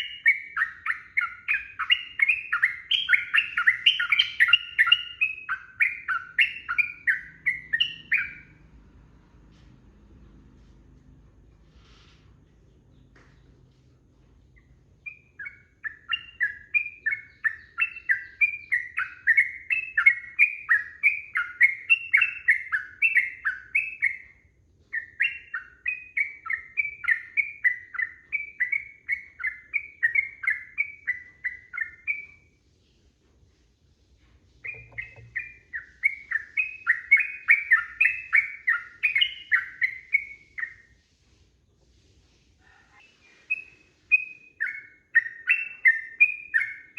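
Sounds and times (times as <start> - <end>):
bird chattering song: 0.0 - 8.6, 14.5 - 32.5, 34.6 - 40.9, 42.8 - 46.9.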